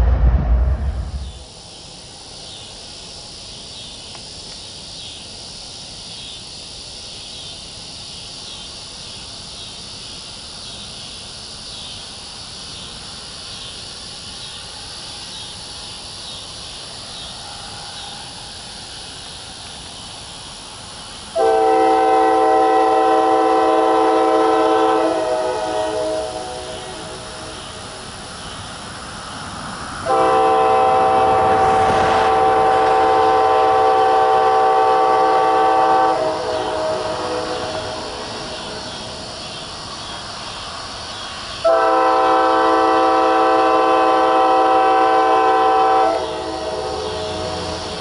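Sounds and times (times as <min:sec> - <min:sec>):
low rumble: 0:00.0 - 0:01.6
steady high hiss: 0:00.0 - 0:48.0
train horn chord: 0:21.4 - 0:27.5, 0:30.0 - 0:38.2, 0:41.6 - 0:47.8.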